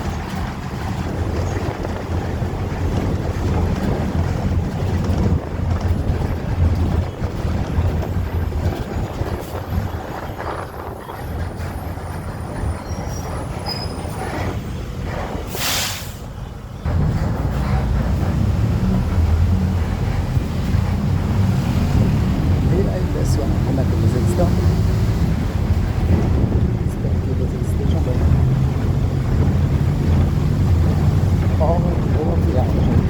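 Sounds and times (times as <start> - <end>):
wind buffeting microphone: 0.0 - 15.5, 16.5 - 33.0
road traffic: 0.0 - 33.0
short hiss: 15.6 - 16.3.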